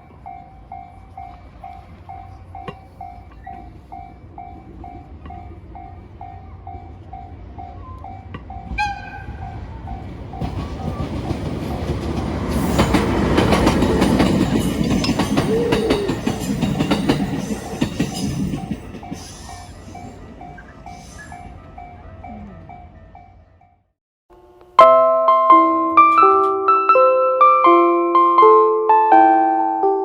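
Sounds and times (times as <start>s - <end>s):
level crossing warning bell: 0.0s - 23.8s
train wheels clattering over rail joints: 10.0s - 21.5s.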